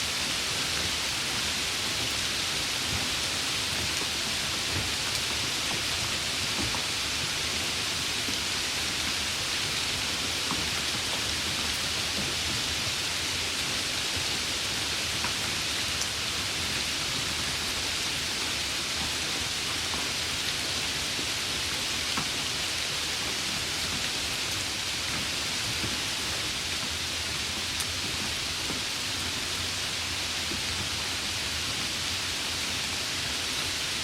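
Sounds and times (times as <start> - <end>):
steady rain hiss: 0.0 - 34.0.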